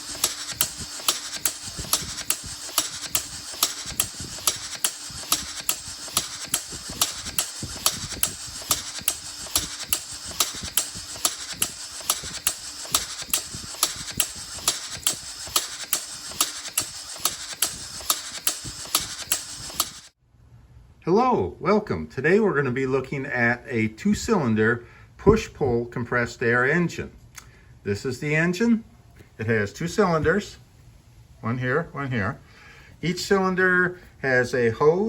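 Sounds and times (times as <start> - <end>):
air engine valves clicking: 0.0 - 20.2.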